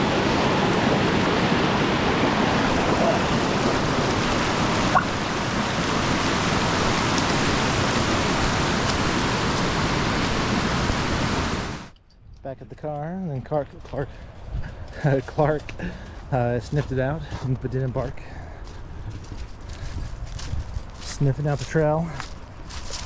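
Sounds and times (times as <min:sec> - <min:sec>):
rushing creek water: 0:00.0 - 0:11.9.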